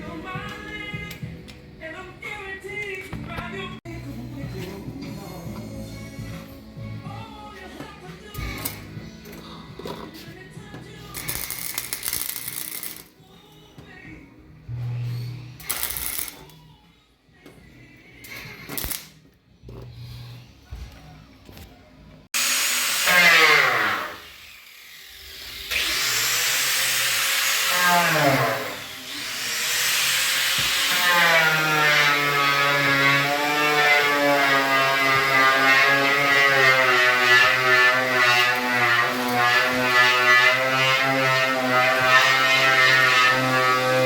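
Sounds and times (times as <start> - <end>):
electric power tool whine: 22.4 - 44.0.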